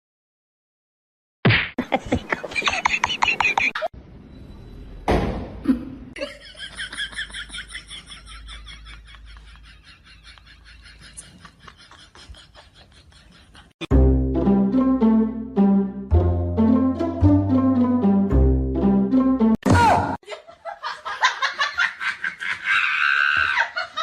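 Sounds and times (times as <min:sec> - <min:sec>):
person laughing: 0:01.8 - 0:03.9, 0:05.6 - 0:13.8
loud string music: 0:13.9 - 0:19.6.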